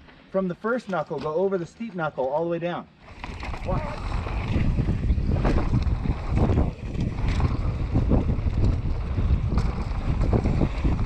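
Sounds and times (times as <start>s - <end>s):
bike tyres rumbling over dirt: 3.0s - 11.0s
wind buffeting microphone: 3.1s - 11.0s.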